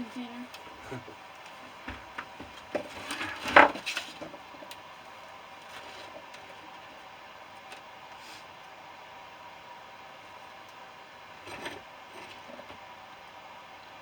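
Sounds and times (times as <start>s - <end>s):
hard objects knocking and clattering: 0.7s - 4.7s.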